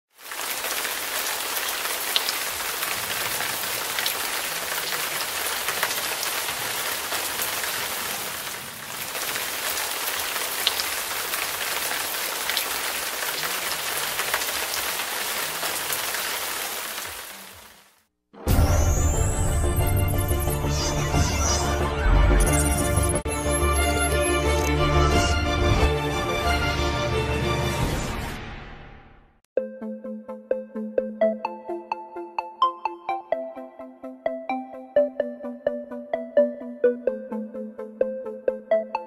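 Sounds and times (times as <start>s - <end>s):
steady rain pattering: 0.1s - 18.1s
sharp raindrop hits: 0.2s - 17.9s.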